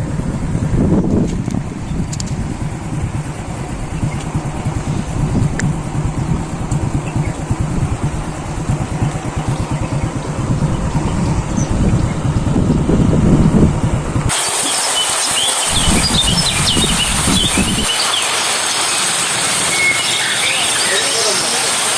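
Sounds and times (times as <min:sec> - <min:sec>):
motorcycle engine running: 0:00.0 - 0:14.4, 0:15.7 - 0:18.0.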